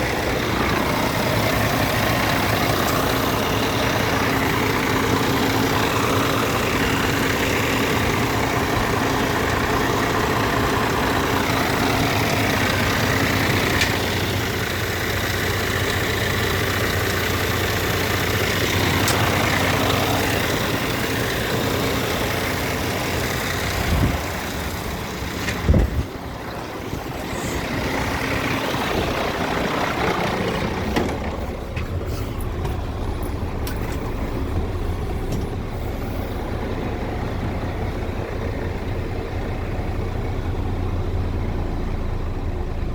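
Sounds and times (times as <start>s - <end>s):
diesel truck engine running: 0.0s - 42.9s.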